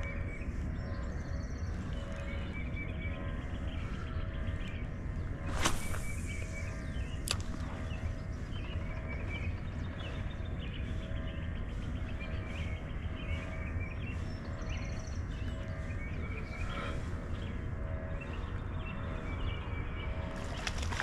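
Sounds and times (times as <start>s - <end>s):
low outdoor rumble: 0.0s - 21.0s
small birds chirping: 0.0s - 21.0s
sharp click: 7.3s - 7.6s.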